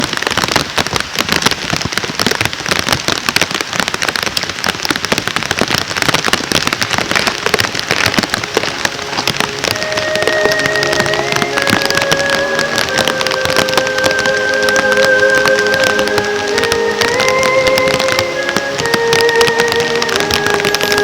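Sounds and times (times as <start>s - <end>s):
campfire crackling and popping: 0.0s - 21.0s
music with held notes: 7.8s - 21.0s.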